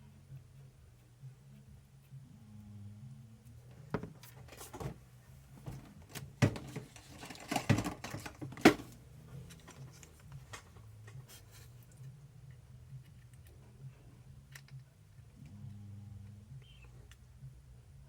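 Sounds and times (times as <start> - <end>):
low steady hum: 0.0 - 18.0
light clicks and knocks of small parts: 14.5 - 15.6.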